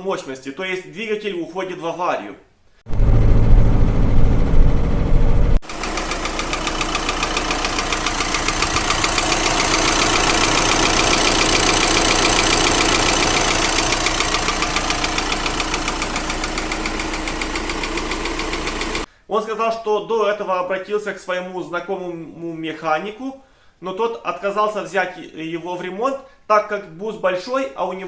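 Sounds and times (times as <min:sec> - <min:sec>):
loud low rumble: 0:02.9 - 0:05.6
diesel engine idling with knock: 0:02.9 - 0:19.1.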